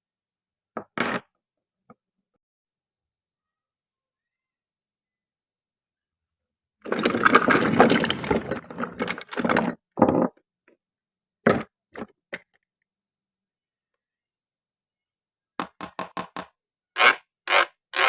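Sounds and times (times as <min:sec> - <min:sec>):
crunching and crackling: 0:06.9 - 0:09.7.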